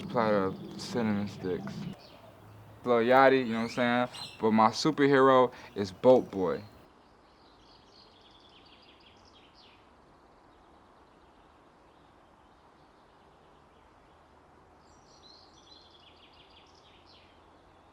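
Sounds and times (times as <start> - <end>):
bird chirping: 0.0 - 6.8
low steady hiss: 0.0 - 7.4.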